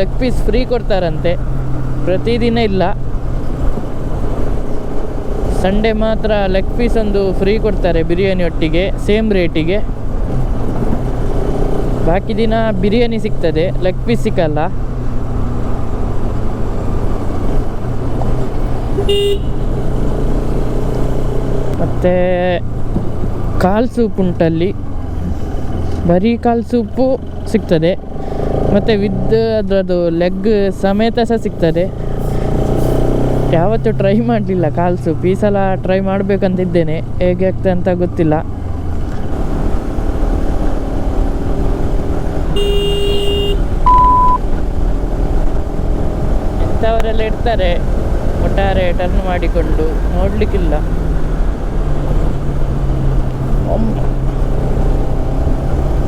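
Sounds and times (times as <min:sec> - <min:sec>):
wind and road noise: 0:00.0 - 0:56.0
vehicle horn toot: 0:19.0 - 0:19.7, 0:42.6 - 0:44.4
motorcycle engine running: 0:37.6 - 0:56.0
short high beep: 0:42.6 - 0:44.4.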